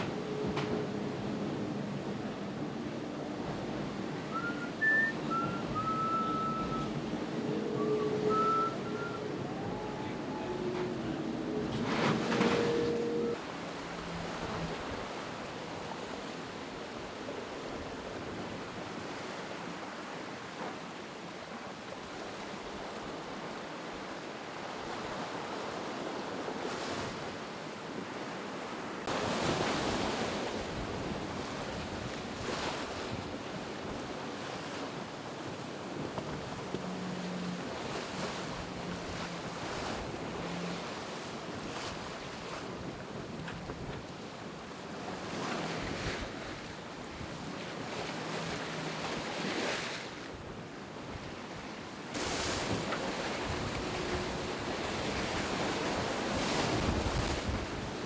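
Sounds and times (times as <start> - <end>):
sea rushing past a hull: 0.0 - 58.0
wind noise on microphone: 49.0 - 58.0.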